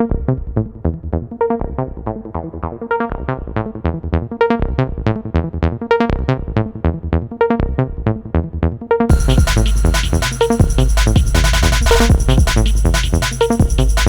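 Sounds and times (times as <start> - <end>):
electronic beat with heavy bass: 9.1 - 14.0
repeating synth notes: 9.1 - 14.0.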